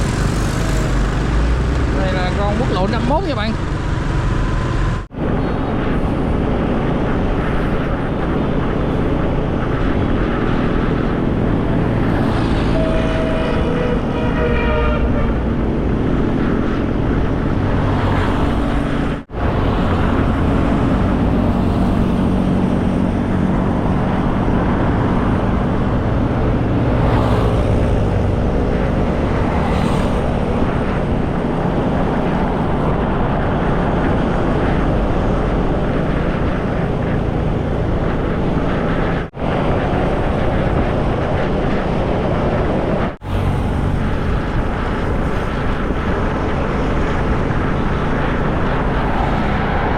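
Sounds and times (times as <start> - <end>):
motorcycle engine: 0.0 - 5.1
road noise: 0.0 - 49.9
wind rushing over microphone: 0.0 - 49.9.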